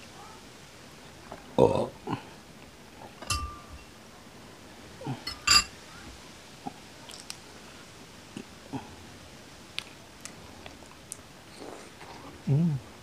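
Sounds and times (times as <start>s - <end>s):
metal spoon clinking on shell: 3.2s - 3.9s.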